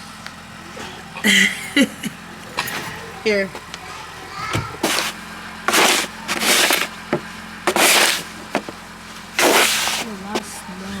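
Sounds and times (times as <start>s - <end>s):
snow crunching and scraping: 4.8s - 7.0s, 7.7s - 10.6s.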